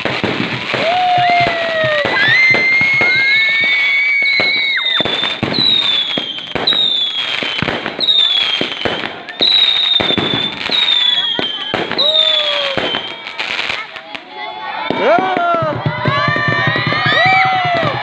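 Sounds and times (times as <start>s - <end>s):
whistling firework shells: 0.0s - 13.9s
fireworks popping and crackling: 0.0s - 18.0s.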